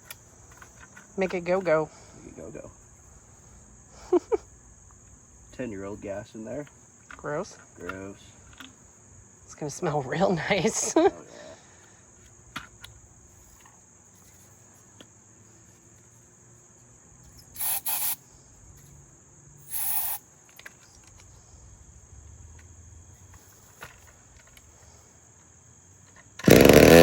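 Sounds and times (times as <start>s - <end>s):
crickets chirping: 0.0s - 27.0s
chainsaw starter cord pulls: 26.4s - 27.0s.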